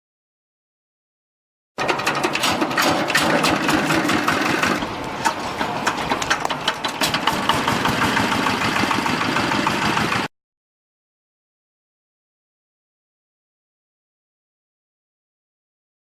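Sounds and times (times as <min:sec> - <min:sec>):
industrial machine running: 0:01.8 - 0:10.3.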